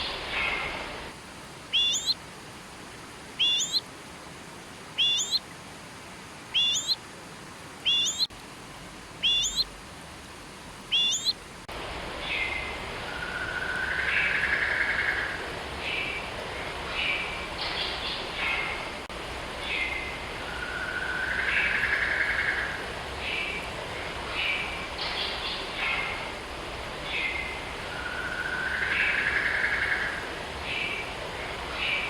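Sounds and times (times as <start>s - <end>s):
hissing background: 0.0s - 32.0s
other birds chirping: 1.7s - 2.2s, 3.4s - 3.8s, 5.0s - 5.4s, 6.6s - 7.0s, 7.9s - 8.3s, 9.2s - 9.7s, 10.9s - 11.4s
bird rising whistled call: 1.8s - 2.2s, 3.4s - 3.8s, 5.0s - 5.4s, 6.6s - 7.0s, 7.9s - 8.3s, 9.2s - 9.6s, 10.9s - 11.4s.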